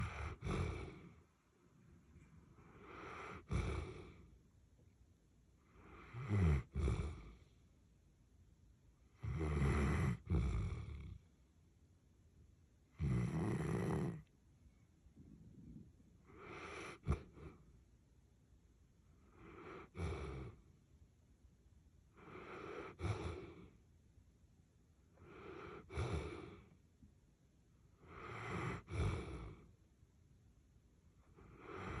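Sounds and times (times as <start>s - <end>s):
dog snoring: 0.0s - 1.3s, 2.5s - 4.3s, 5.6s - 7.5s, 9.1s - 11.3s, 12.9s - 14.3s, 15.7s - 17.6s, 19.2s - 20.7s, 22.1s - 23.8s, 25.1s - 26.8s, 28.0s - 29.7s, 31.2s - 32.0s.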